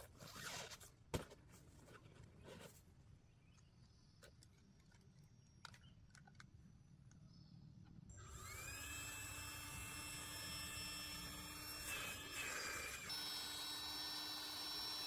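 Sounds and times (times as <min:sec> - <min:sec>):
small motor whining: 0:08.1 - 0:15.0.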